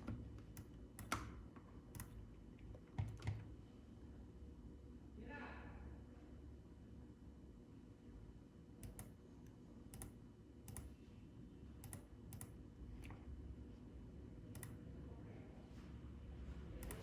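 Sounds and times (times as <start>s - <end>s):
faint low hum: 0.0s - 17.0s
computer mouse clicking: 0.5s - 1.3s, 1.9s - 2.2s, 8.8s - 9.2s, 9.9s - 10.9s, 11.8s - 12.6s, 14.5s - 14.8s, 16.8s - 17.0s.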